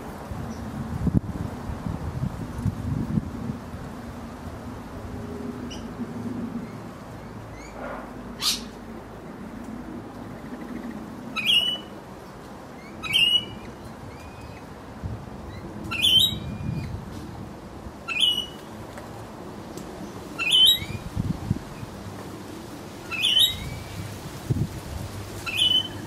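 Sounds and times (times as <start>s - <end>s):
parrot shrill calls: 8.4s - 8.7s, 23.1s - 23.9s, 25.4s - 26.0s.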